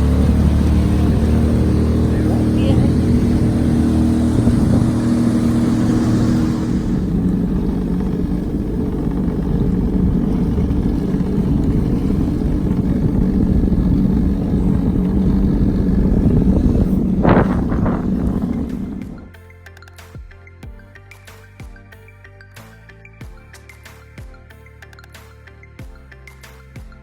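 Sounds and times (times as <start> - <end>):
rushing wind and water: 0.0 - 19.3
jet ski engine running: 0.0 - 19.4.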